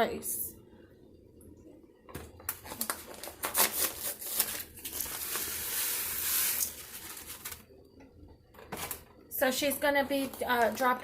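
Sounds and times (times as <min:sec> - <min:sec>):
packaging crinkling and tearing: 0:02.5 - 0:07.7
steady hiss: 0:05.1 - 0:07.6.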